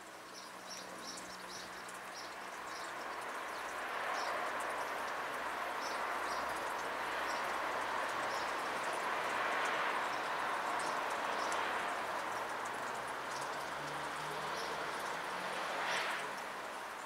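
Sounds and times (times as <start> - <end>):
small birds chirping: 0.2 - 5.1, 5.8 - 6.6.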